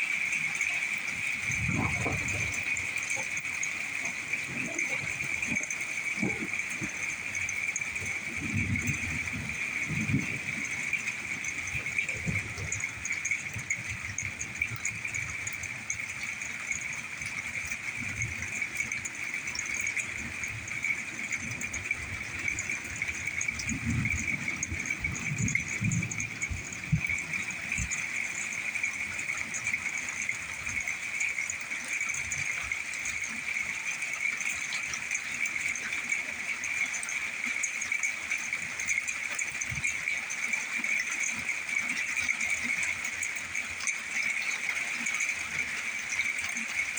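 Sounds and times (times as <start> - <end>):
distant thunder rumble: 1.0 - 31.3.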